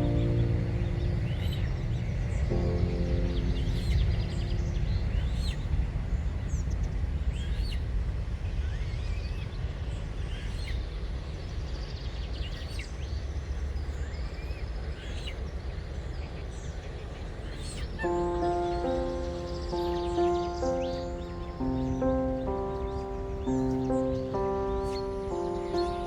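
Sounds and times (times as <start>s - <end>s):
high bird chirps: 18.0s - 26.0s.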